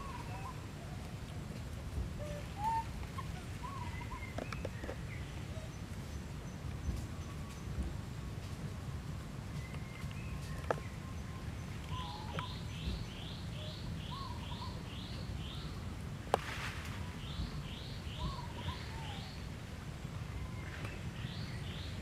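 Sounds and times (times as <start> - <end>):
birds chirping: 0.0 - 0.7, 2.2 - 7.8, 9.5 - 15.9, 17.1 - 19.6
bird warbling: 2.2 - 4.6.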